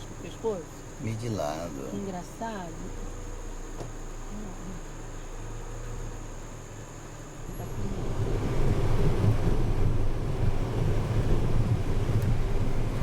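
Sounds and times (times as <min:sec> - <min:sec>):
vehicle rumbling along road: 0:00.0 - 0:13.0.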